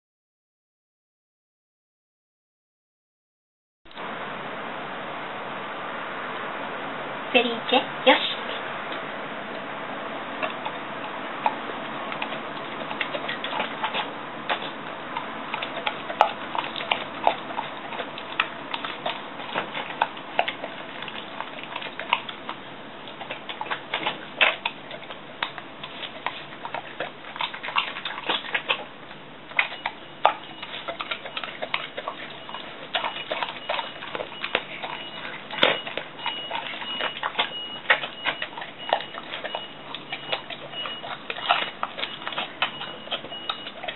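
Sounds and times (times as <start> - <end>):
pet chewing and licking: 7.4 - 43.9.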